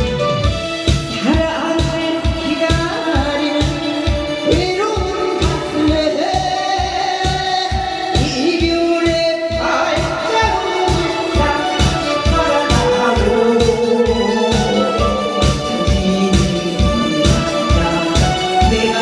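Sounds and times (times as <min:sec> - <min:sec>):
steady beat: 0:00.4 - 0:19.0
person singing gliding notes: 0:09.6 - 0:19.0.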